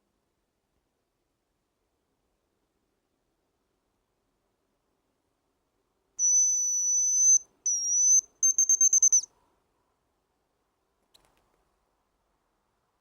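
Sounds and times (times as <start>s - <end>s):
high thin whistled tone: 6.2s - 9.3s.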